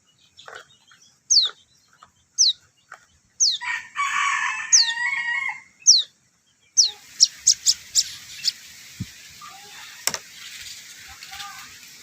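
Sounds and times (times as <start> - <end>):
bird chick calling: 0.0 - 4.1, 4.7 - 8.7.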